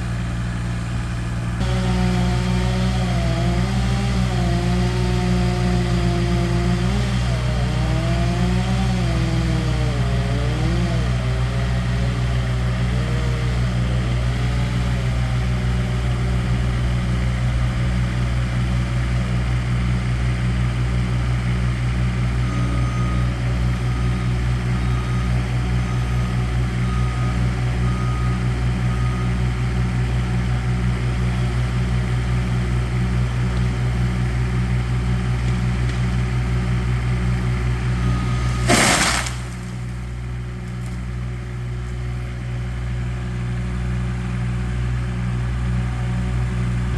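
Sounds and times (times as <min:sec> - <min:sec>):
heavy engine idling: 0:00.0 - 0:46.9
motor pitch wavering: 0:01.6 - 0:15.2.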